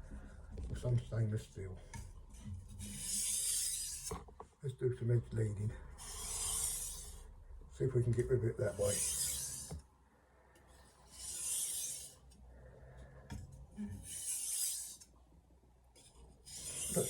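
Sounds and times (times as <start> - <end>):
knife scraping on whetstone: 2.8 - 4.2, 6.0 - 7.2, 8.7 - 9.8, 11.1 - 12.2, 14.0 - 15.0, 16.4 - 17.0.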